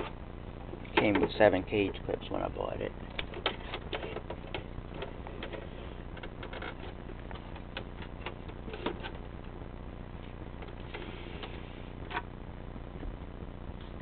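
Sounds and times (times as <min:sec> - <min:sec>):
fan motor humming: 0:00.0 - 0:14.0.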